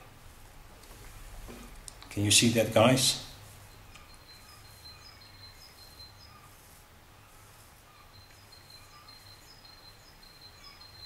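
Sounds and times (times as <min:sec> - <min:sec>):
small bird chirping: 0:03.2 - 0:11.0.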